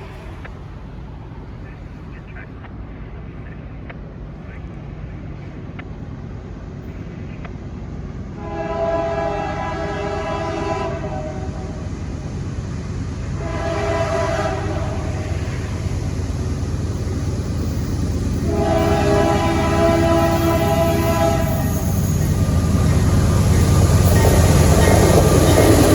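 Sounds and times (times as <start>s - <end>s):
diesel locomotives rumbling: 0.0s - 25.9s
locomotive horn blasts: 8.4s - 11.8s, 13.4s - 15.2s, 18.4s - 21.9s.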